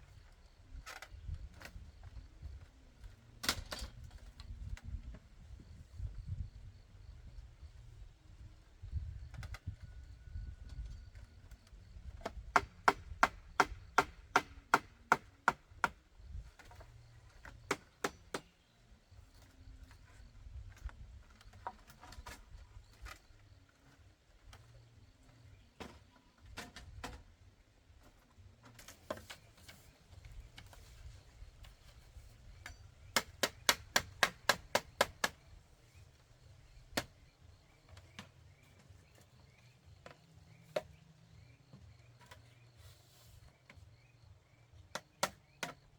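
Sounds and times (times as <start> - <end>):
blade chopping bamboo: 33.1 - 35.4.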